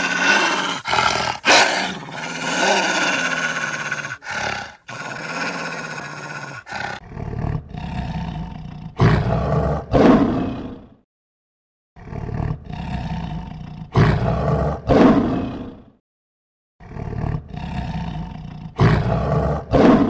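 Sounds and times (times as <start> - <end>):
lion roaring and grunting: 0.0 - 10.9, 12.0 - 15.8, 16.8 - 20.0.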